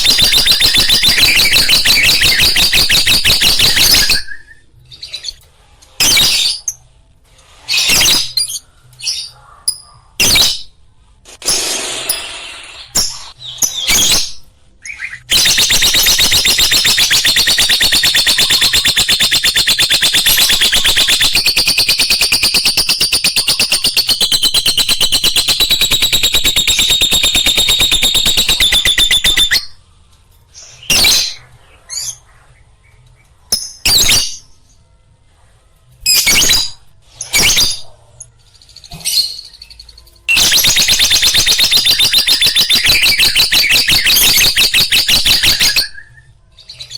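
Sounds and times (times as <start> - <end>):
lovebird twittering: 0.0 - 4.4, 15.3 - 29.7, 40.3 - 46.0.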